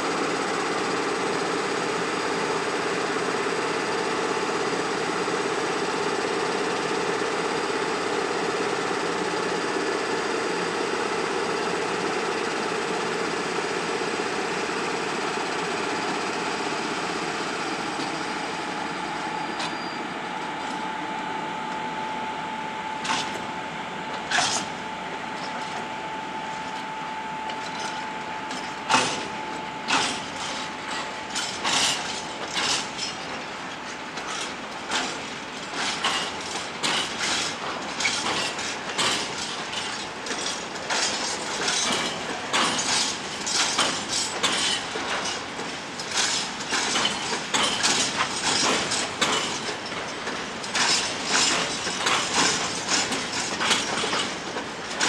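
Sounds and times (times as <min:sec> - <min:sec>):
electric locomotive running: 0:00.0 - 0:55.0
freight wagons knocking and clanking: 0:29.9 - 0:33.2, 0:34.2 - 0:55.0.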